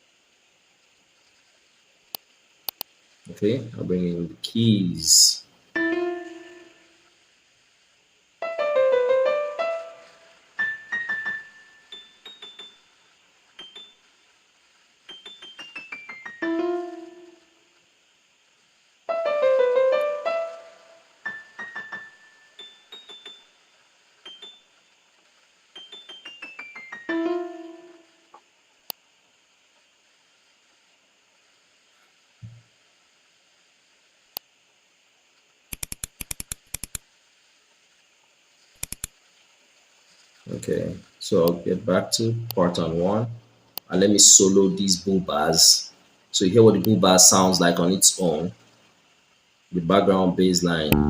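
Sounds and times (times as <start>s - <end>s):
computer mouse clicking: 2.7s - 2.9s, 35.7s - 37.0s, 38.8s - 39.1s
electric piano notes and chords: 5.1s - 6.8s, 8.4s - 12.7s, 15.1s - 17.4s, 19.1s - 23.4s, 25.8s - 28.1s.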